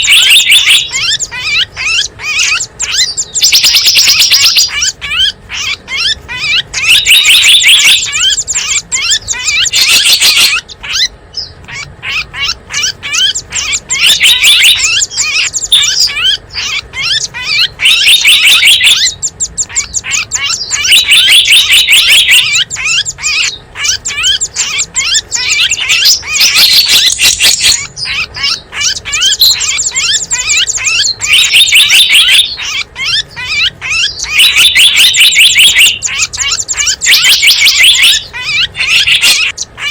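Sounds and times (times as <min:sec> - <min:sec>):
small birds twittering: 0:00.0 - 0:39.9.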